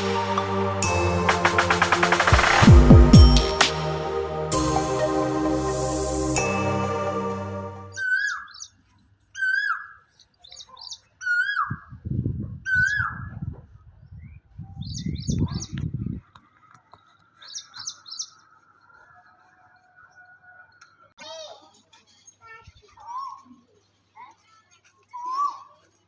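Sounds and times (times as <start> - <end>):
high chirps: 0.0 - 8.1
low rumble: 0.3 - 6.6.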